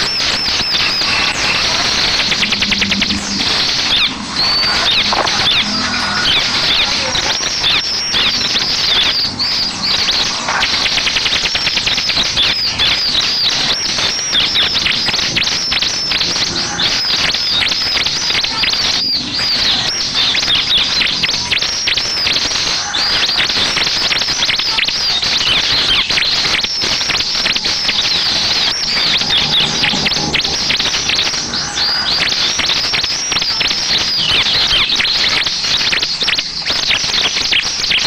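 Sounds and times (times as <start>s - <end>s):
bird singing rapid high chatter: 0.0s - 38.0s.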